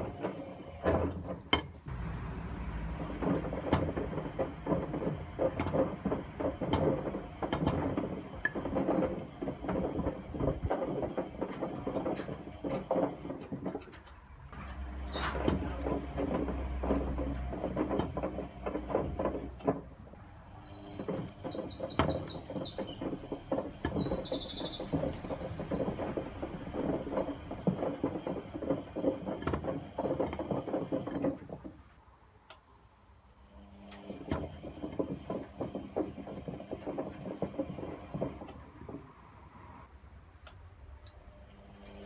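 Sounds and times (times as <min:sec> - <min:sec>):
washing machine drum tumbling: 0:00.0 - 0:31.8
bird chirping: 0:20.3 - 0:26.0.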